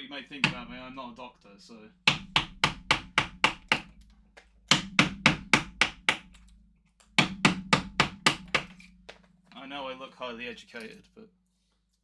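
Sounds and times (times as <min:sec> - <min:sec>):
mallet striking chisel into wood: 0:00.4 - 0:00.9, 0:02.1 - 0:04.0, 0:04.7 - 0:09.2.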